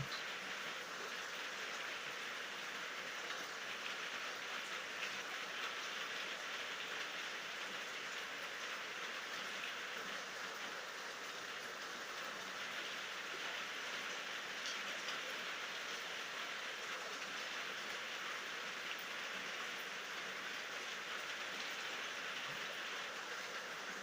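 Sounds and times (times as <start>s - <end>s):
steady rainfall hiss: 0.0s - 24.0s
raindrop ticks: 14.6s - 15.3s.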